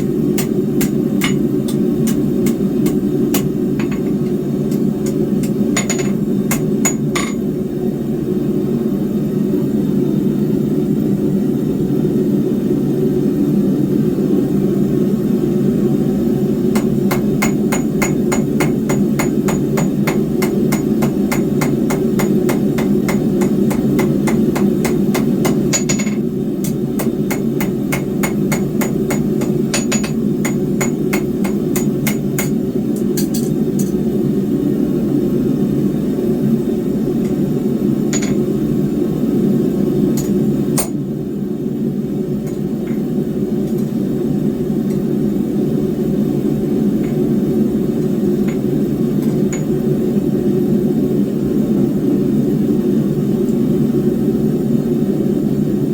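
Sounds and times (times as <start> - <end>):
hammer blows on anvil: 0.0 - 7.4.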